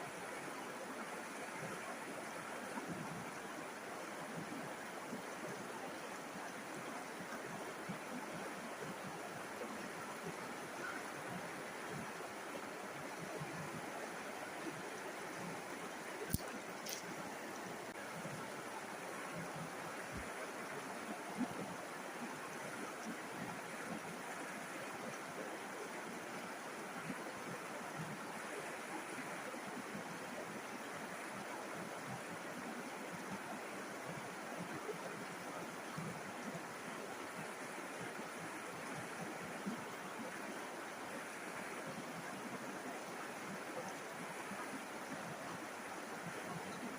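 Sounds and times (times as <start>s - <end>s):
river water flowing: 0.0s - 46.9s.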